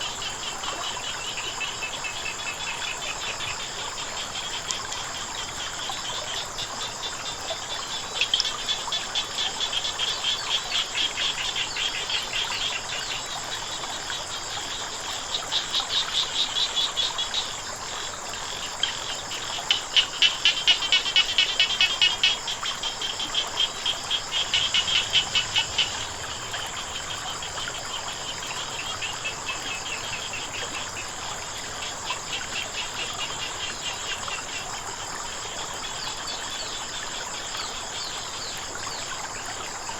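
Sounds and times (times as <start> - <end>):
frogs croaking: 0.0 - 39.9
insects trilling: 0.0 - 39.9.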